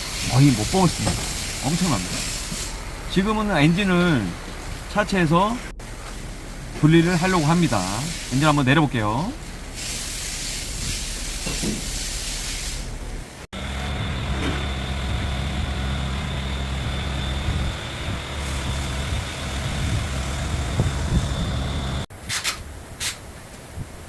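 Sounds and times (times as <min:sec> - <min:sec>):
air hissing: 0:00.0 - 0:05.0, 0:05.6 - 0:08.7, 0:09.7 - 0:13.0, 0:13.6 - 0:23.2
machine humming with high whine: 0:13.6 - 0:22.1.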